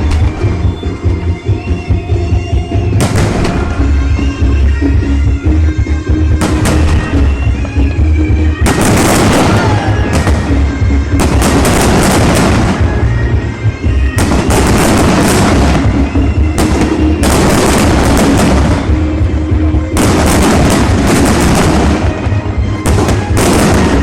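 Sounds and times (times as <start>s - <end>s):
fireworks crackling bangs: 3.0s - 4.0s, 6.4s - 7.8s, 8.6s - 13.2s, 14.1s - 24.0s.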